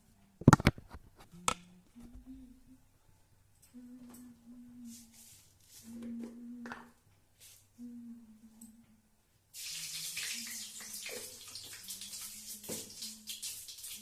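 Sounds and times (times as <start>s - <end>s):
water running from kitchen tap: 9.6s - 14.0s.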